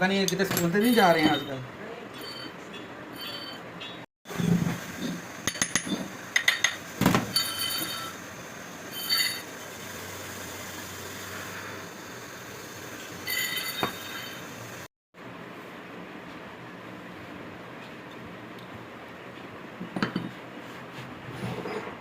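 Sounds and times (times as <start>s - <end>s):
workshop hum: 0.0s - 22.0s
metal tools clinking: 0.3s - 1.6s, 7.3s - 8.2s, 9.0s - 9.5s.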